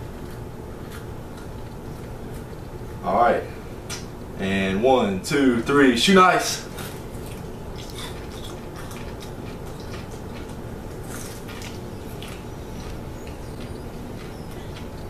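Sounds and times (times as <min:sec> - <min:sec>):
egg shell crunching while chewed: 0:00.1 - 0:03.0, 0:06.7 - 0:15.0.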